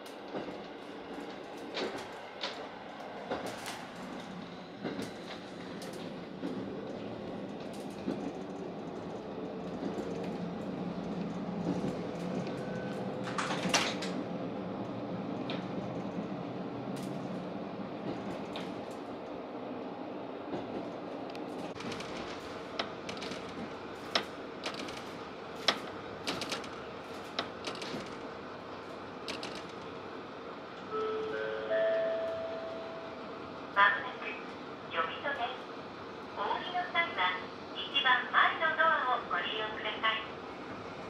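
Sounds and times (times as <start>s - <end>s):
train engine drone: 0.0s - 41.0s
train running noise: 0.0s - 41.0s
sharp irregular clicks and clacks: 20.5s - 28.2s, 29.3s - 29.9s.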